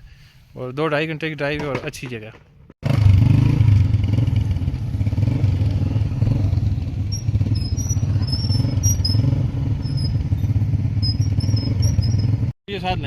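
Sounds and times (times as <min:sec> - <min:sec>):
motorcycle engine running: 0:02.8 - 0:12.5.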